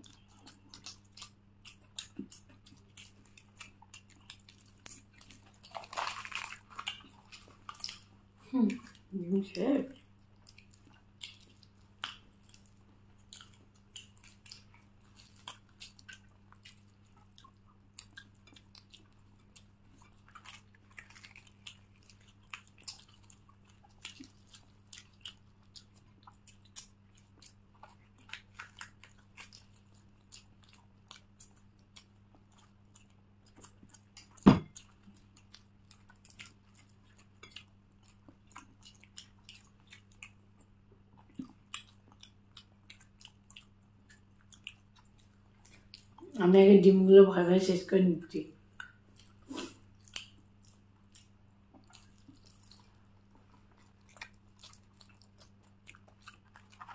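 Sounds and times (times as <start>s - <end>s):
chewing and biting food: 0.0s - 46.4s, 48.6s - 56.9s
wet mouth clicks: 48.8s - 52.4s.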